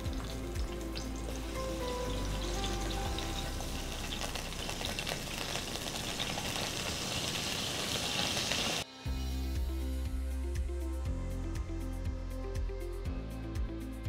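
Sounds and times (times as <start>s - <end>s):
eggplants sizzling in oil: 0.0s - 8.9s.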